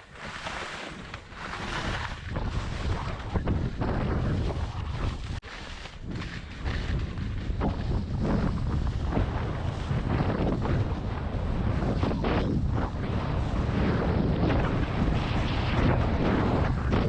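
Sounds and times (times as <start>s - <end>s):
skis scraping on snow: 0.0s - 12.2s
wind buffeting microphone: 0.0s - 17.0s.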